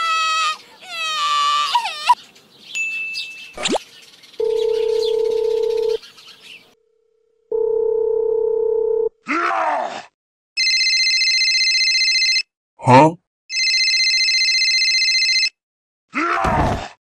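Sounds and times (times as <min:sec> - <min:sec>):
telephone ringback beeps: 0:04.4 - 0:06.0
telephone ringing: 0:04.4 - 0:06.0, 0:07.5 - 0:09.1, 0:10.6 - 0:12.5, 0:13.5 - 0:15.6.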